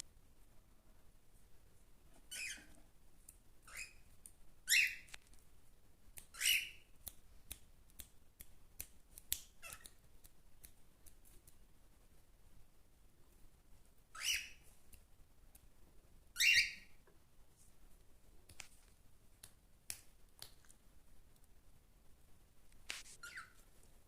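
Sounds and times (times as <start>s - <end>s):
cockatiels shrill calls: 2.3s - 2.7s, 3.7s - 4.0s, 4.7s - 5.1s, 6.3s - 6.8s, 14.1s - 14.6s, 16.4s - 16.9s, 23.2s - 23.6s.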